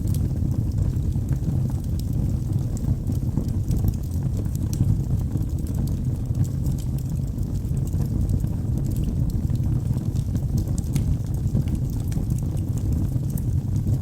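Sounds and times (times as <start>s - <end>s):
burning logs crackling: 0.0s - 14.0s
low rumble of flames: 0.0s - 14.0s.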